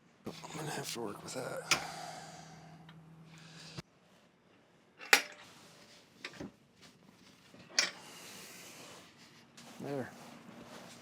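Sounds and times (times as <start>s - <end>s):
low hum: 0.3s - 3.8s.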